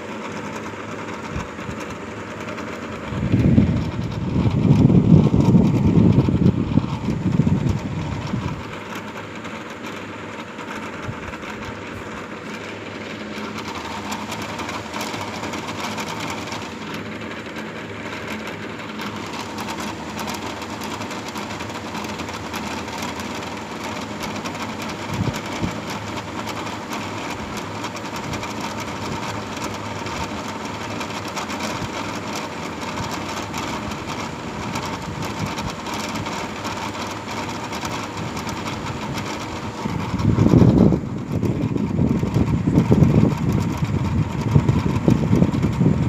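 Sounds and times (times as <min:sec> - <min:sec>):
motor drone: 0:00.0 - 0:46.0.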